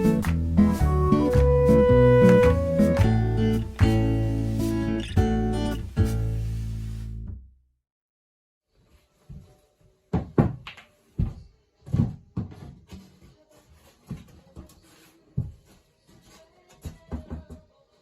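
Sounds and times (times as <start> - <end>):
knocks and thumps: 10.1 - 13.1.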